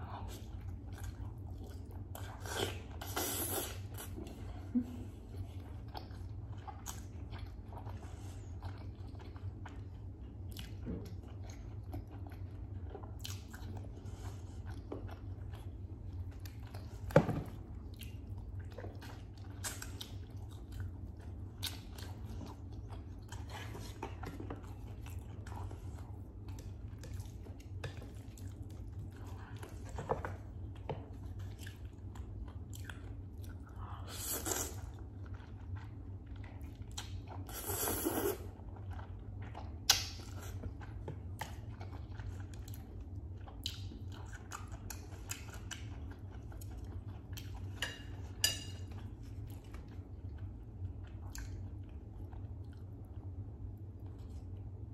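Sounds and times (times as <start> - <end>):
close chewing and biting: 5.3 - 54.8.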